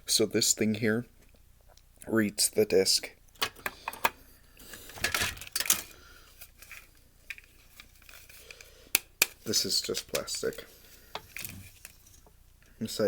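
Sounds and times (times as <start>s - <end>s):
plastic and metal parts clattering: 3.4s - 8.6s, 9.4s - 12.3s.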